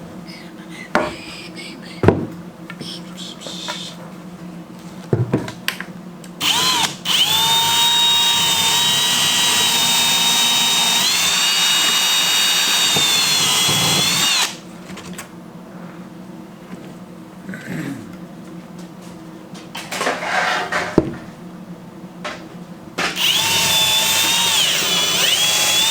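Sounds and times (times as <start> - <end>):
knocks: 2.0 - 2.4
power drill whining: 6.4 - 14.6, 23.2 - 25.9.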